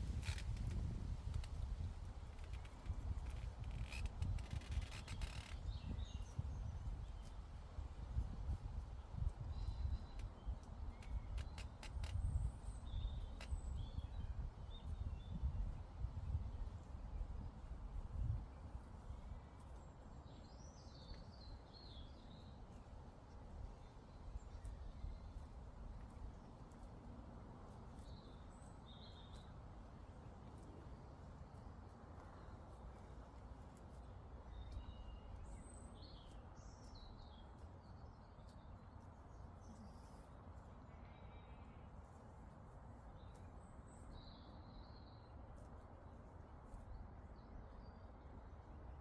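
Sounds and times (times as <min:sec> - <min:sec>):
low wind rumble: 0:00.0 - 0:07.2.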